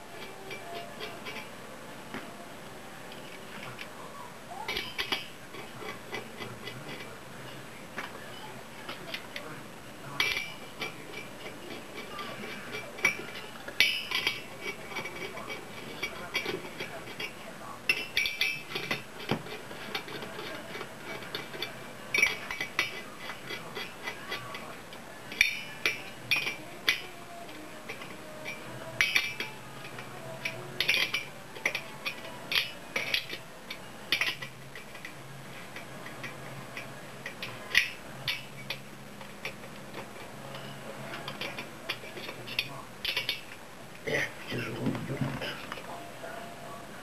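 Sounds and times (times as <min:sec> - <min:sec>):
socket wrench clinking on metal: 0:27.9 - 0:35.1.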